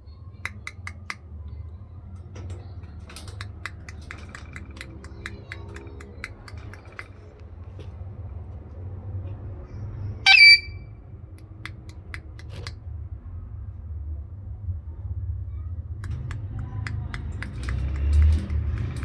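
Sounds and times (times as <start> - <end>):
parrot screech: 10.3 - 10.8.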